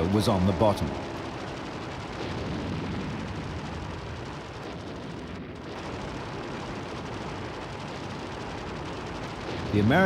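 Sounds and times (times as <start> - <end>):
explosions and gunfire: 2.0 - 10.0.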